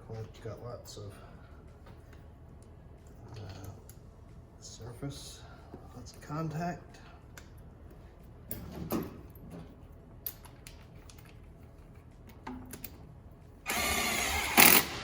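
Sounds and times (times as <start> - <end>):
motorised hand tool buzzing: 13.7 - 15.0.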